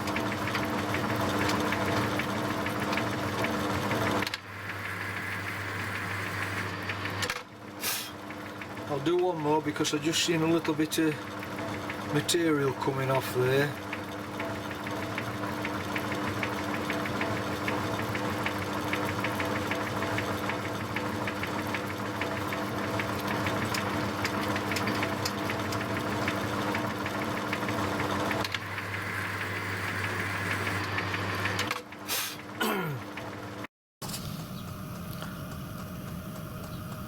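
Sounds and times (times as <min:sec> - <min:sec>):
lathe motor hum: 0:00.0 - 0:31.8, 0:34.3 - 0:37.0
fine ticking of gear train: 0:34.4 - 0:37.0.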